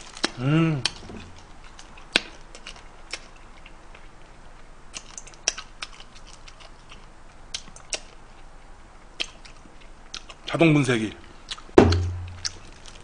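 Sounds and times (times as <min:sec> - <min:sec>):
chewing crab clicks and crunches: 0:01.7 - 0:04.1, 0:04.9 - 0:08.2, 0:09.2 - 0:10.5.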